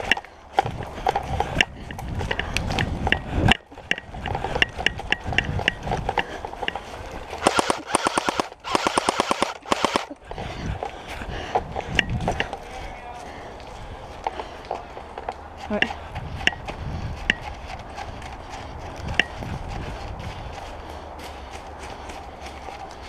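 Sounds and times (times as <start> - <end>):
airsoft gun full-auto bursts: 7.4 - 10.2.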